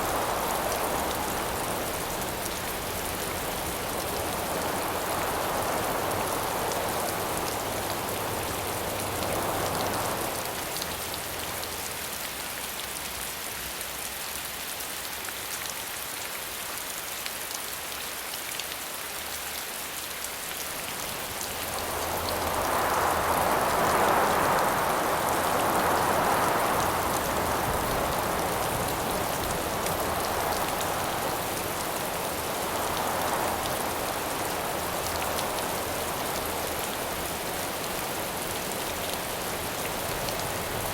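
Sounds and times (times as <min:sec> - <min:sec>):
wind gusts: 0:00.0 - 0:12.3, 0:20.6 - 0:40.9
steady rain falling: 0:00.0 - 0:40.9.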